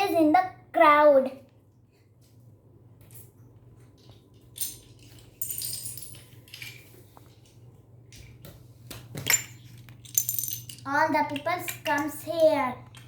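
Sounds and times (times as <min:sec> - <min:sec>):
toy pieces clattering: 0:04.0 - 0:07.4, 0:09.2 - 0:13.0.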